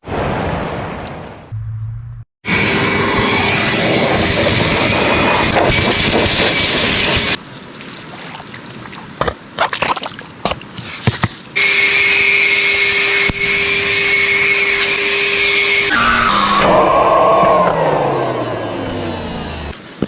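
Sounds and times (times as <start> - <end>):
knocks and scrapes on rock: 9.2 - 11.5.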